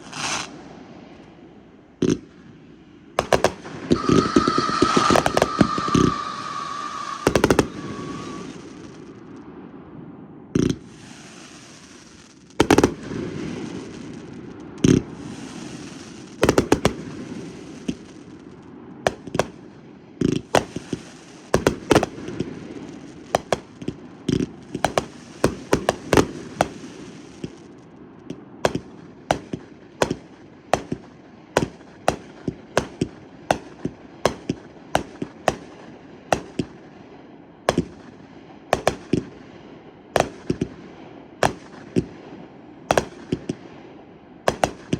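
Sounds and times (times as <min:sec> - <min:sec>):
fireworks bangs: 0:00.0 - 0:00.8, 0:02.0 - 0:44.9
fireworks crackling: 0:00.0 - 0:01.4, 0:03.2 - 0:09.6, 0:10.6 - 0:36.9, 0:37.7 - 0:39.6, 0:40.2 - 0:42.2, 0:42.9 - 0:43.8, 0:44.5 - 0:44.9
low rumble: 0:03.5 - 0:10.5.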